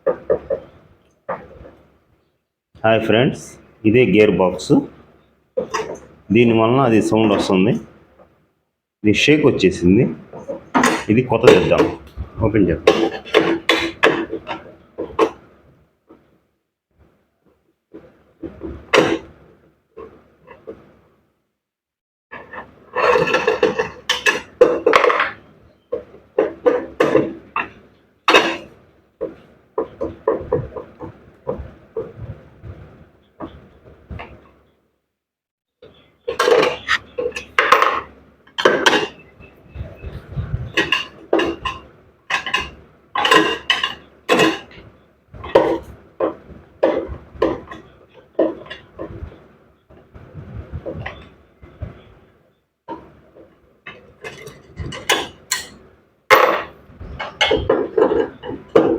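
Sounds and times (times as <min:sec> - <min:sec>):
tools clanking on metal: 0:05.6 - 0:06.1, 0:12.8 - 0:15.4, 0:22.4 - 0:32.3, 0:36.3 - 0:39.3, 0:40.7 - 0:49.1, 0:53.9 - 0:58.9.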